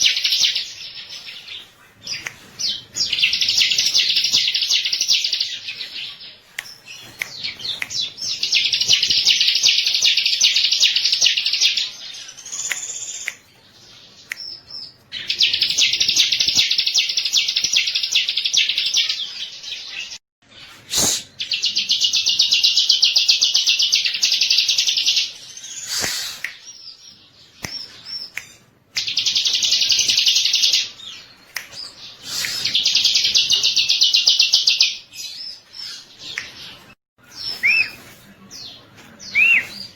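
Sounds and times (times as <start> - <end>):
bird singing rapid high chirps: 29.0 - 38.1.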